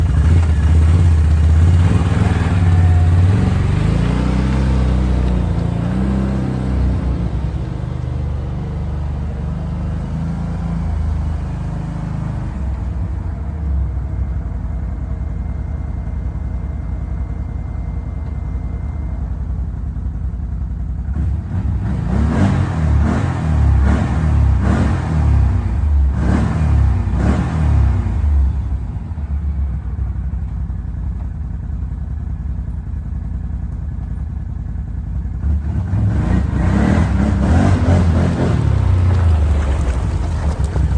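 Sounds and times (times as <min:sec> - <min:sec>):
quad engine revving: 0:00.0 - 0:12.4, 0:21.1 - 0:28.5, 0:35.4 - 0:40.9.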